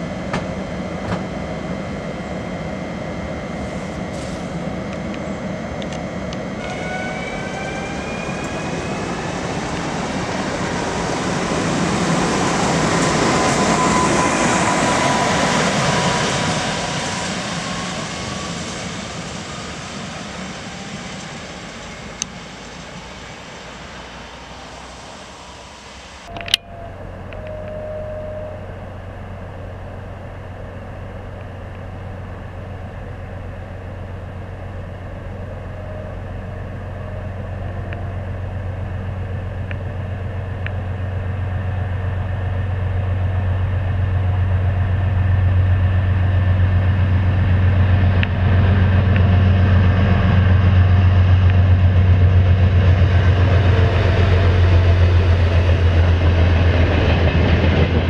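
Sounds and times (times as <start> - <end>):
electric train passing with whine: 0.0 - 58.0
locomotive humming: 0.0 - 58.0.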